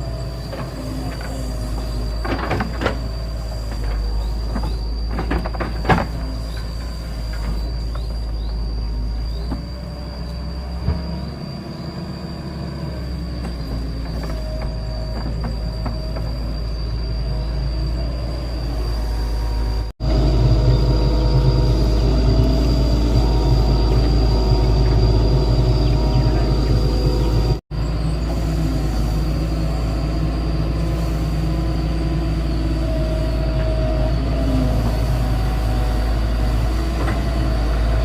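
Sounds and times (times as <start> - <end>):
excavator diesel engine running: 0.0 - 38.0.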